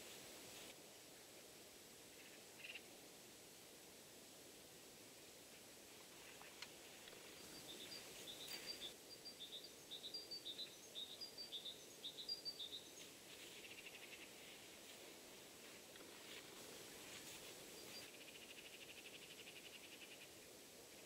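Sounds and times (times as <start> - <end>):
small bird chirping: 2.2 - 2.9, 7.1 - 14.5, 17.8 - 20.4.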